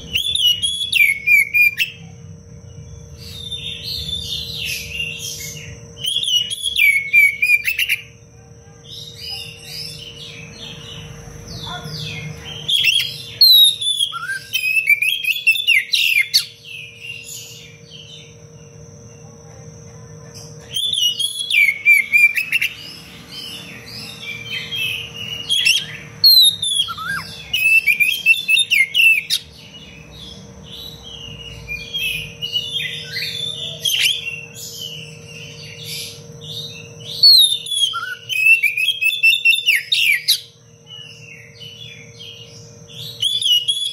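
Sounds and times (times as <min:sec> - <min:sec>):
bird singing whistles and trills: 0:00.0 - 0:02.0, 0:02.8 - 0:08.2, 0:08.9 - 0:18.4, 0:20.6 - 0:43.9.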